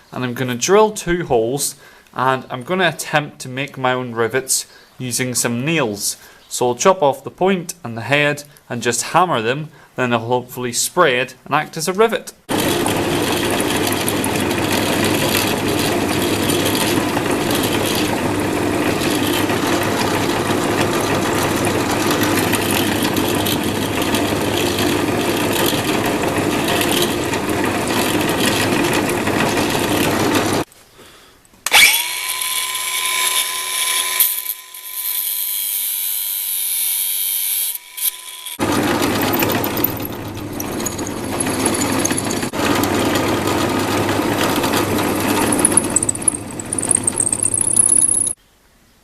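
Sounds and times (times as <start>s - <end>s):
electric drill drilling wood: 12.5s - 30.7s, 31.7s - 48.4s.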